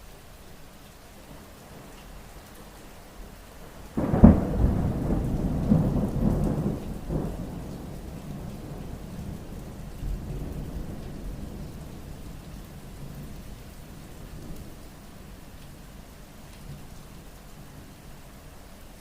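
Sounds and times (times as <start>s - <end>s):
steady rain: 0.0s - 19.0s
thunder rumbling: 4.0s - 15.3s.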